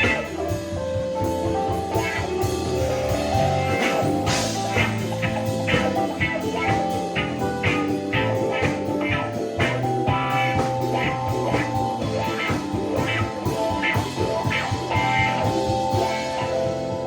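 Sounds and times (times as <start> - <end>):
drums keeping steady beat: 0.0 - 17.0
electric guitar notes: 0.0 - 17.0.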